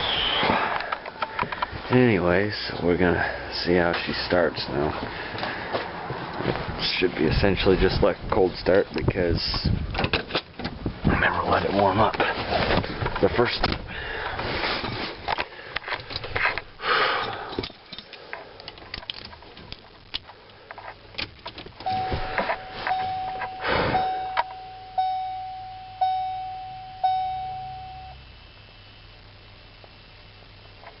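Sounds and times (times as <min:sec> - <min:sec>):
dashboard warning chime: 0:21.8 - 0:28.2.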